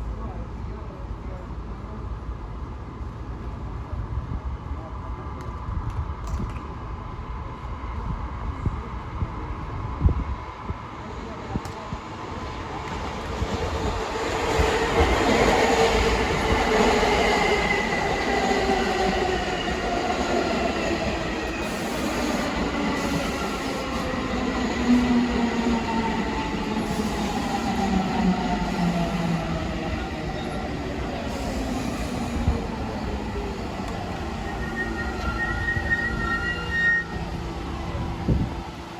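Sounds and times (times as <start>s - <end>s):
wheels rumbling on rail: 7.2s - 38.9s
subway train braking: 12.1s - 38.9s.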